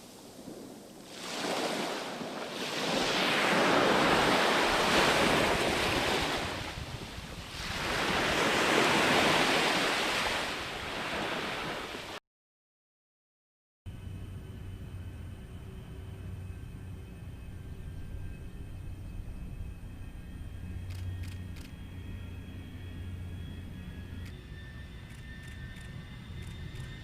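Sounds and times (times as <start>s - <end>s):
ocean waves washing in: 0.0s - 12.2s.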